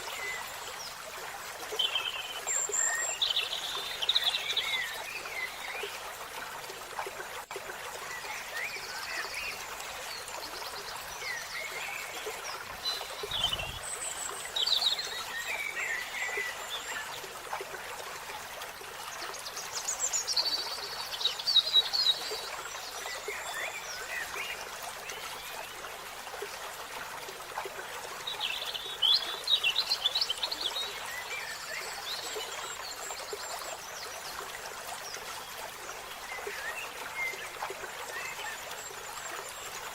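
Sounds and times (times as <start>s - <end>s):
birds chirping and trilling: 12.8s - 13.9s.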